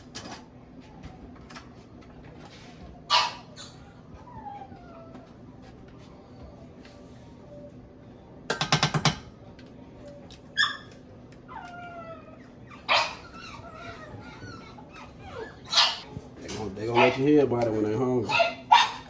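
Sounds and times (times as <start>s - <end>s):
dogs barking and yipping: 3.1s - 5.2s, 10.5s - 17.4s, 18.2s - 19.0s
dog whining: 3.1s - 5.4s, 10.0s - 16.2s.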